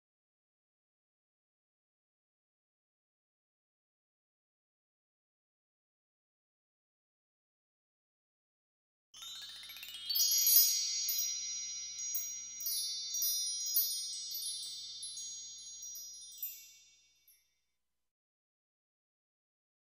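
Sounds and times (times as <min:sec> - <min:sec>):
bright tinkling chimes: 0:09.2 - 0:17.7.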